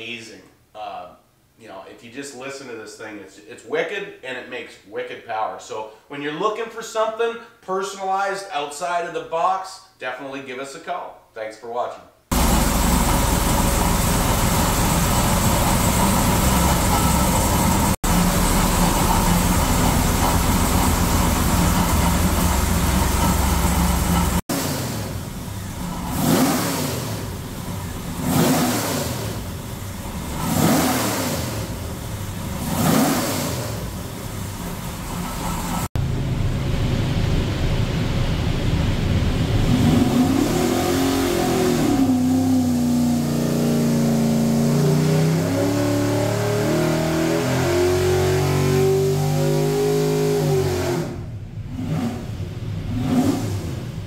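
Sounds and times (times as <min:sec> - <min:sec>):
engine running loudly: 0:12.3 - 0:43.5
engine throttle blips: 0:12.3 - 0:54.0.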